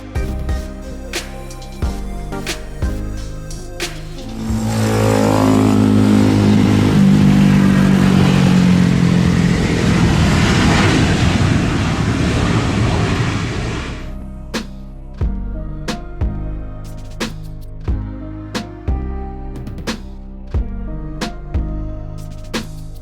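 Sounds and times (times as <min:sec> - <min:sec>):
loud steady rush: 0:03.8 - 0:14.2
vehicle engine revving: 0:04.3 - 0:14.1.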